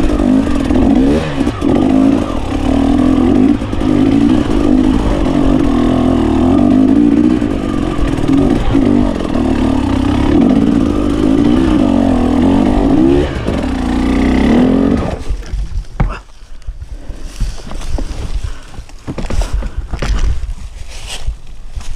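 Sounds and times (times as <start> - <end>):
two-stroke motorcycle engine revving: 0.0 - 15.6.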